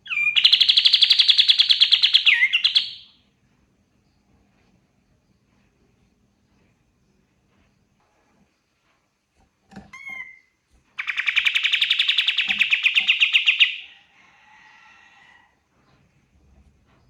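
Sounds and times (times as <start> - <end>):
songbird singing: 0.0 - 3.2, 9.9 - 14.0.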